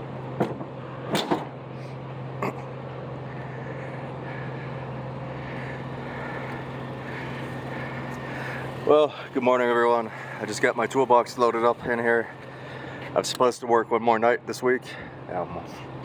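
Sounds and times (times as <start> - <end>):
pickup truck engine idling: 1.7 - 13.3.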